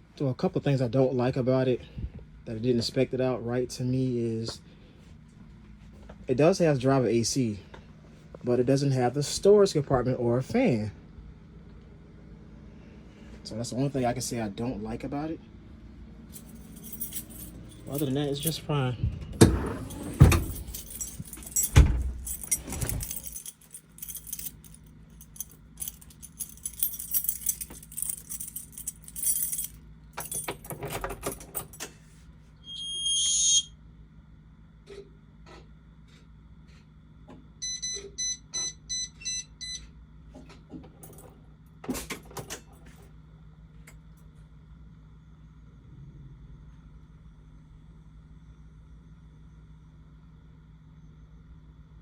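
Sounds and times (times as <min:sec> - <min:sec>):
steady low electrical hum: 0:00.0 - 0:52.0
keys jangling in ignition: 0:16.3 - 0:32.0
electronic dashboard beep: 0:32.6 - 0:33.7, 0:37.6 - 0:39.8
warning beeps: 0:32.7 - 0:33.7.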